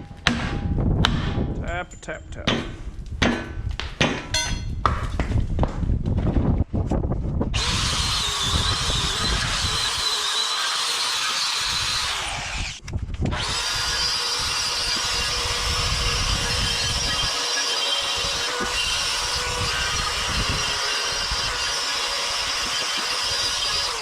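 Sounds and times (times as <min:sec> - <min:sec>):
wind rumbling on microphone: 0:00.0 - 0:10.2, 0:11.6 - 0:17.4, 0:18.0 - 0:24.0
power drill whining: 0:07.6 - 0:24.0.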